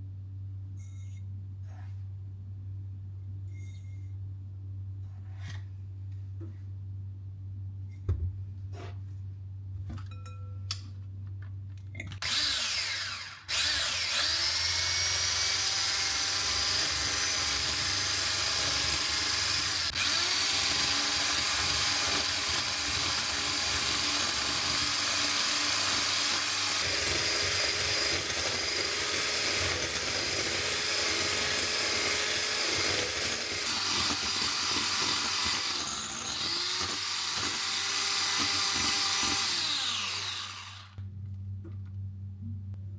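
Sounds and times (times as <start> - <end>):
electric mixer motor whining: 12.2 - 18.0, 18.7 - 21.5, 33.6 - 41.0.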